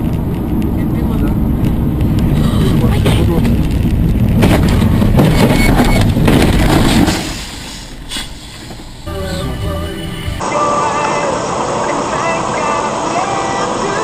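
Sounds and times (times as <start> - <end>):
car road and engine noise: 0.0 - 14.0
steady tones: 8.9 - 13.4.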